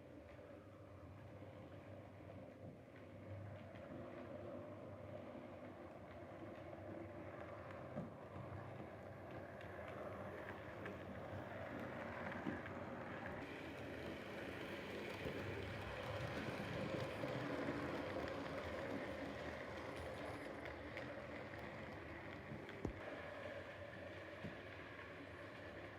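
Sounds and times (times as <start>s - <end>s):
wheel rumble on track: 5.3s - 23.1s
model train motor hum: 6.9s - 25.9s.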